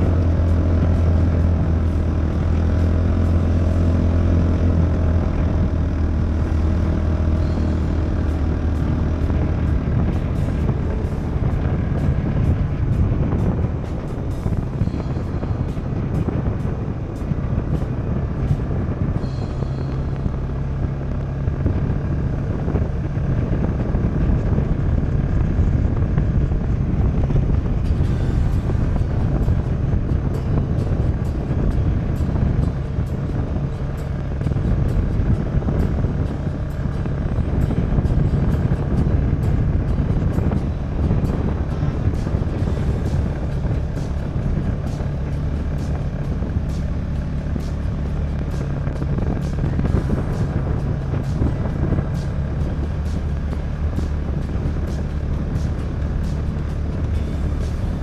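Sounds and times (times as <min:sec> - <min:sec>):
vehicle engine droning: 0:00.0 - 0:58.0
wind buffeting microphone: 0:00.0 - 0:58.0.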